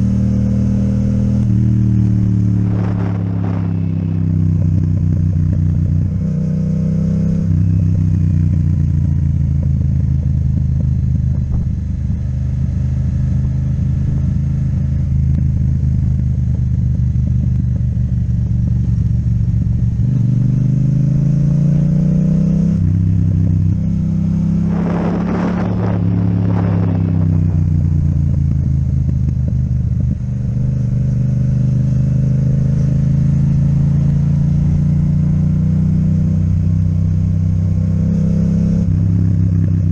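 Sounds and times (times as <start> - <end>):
motorcycle engine accelerating: 0.0 - 39.9
short rush of noise: 2.4 - 4.3.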